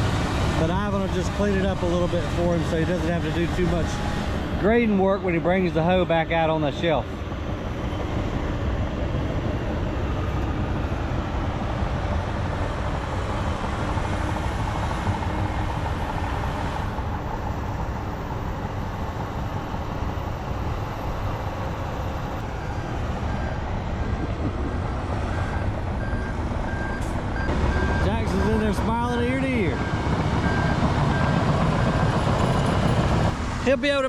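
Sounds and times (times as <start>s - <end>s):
diesel engine droning: 0.0s - 34.0s
backup alarm beeping: 29.6s - 32.2s.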